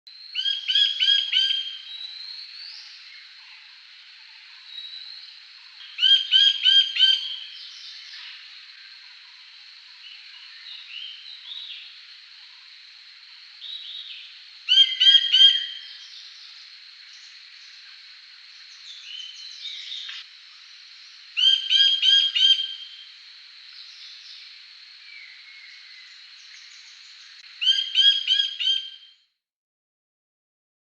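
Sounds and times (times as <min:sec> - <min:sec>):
bird calling harsh repeated notes: 0:21.4 - 0:23.0, 0:27.6 - 0:29.1.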